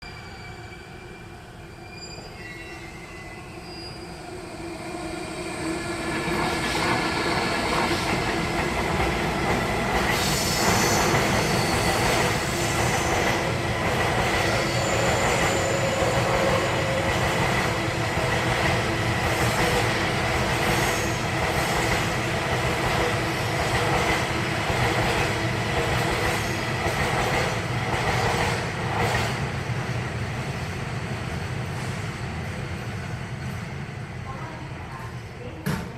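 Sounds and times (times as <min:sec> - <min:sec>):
high wheel squeal: 0:00.0 - 0:04.3, 0:10.3 - 0:13.3, 0:14.5 - 0:17.0
train passing: 0:00.0 - 0:35.7.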